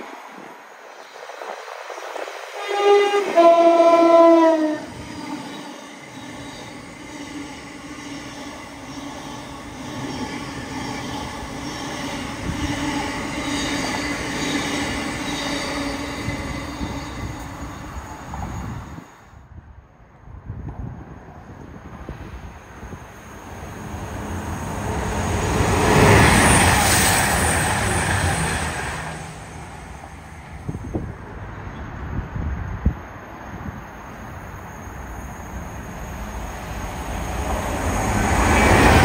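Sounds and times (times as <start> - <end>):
train running through station: 0.0 - 39.0
train two-tone horn: 2.6 - 5.3.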